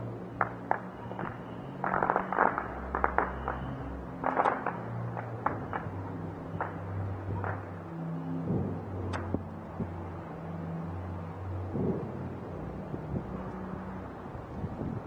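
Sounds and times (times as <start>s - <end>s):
fireworks crackling and popping: 0.4s - 7.7s.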